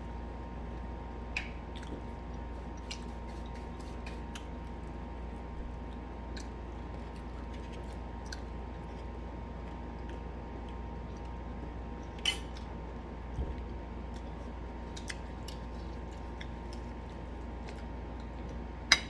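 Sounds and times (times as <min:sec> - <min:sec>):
steady background hum: 0:00.0 - 0:19.0
chewing fried food: 0:00.6 - 0:18.9.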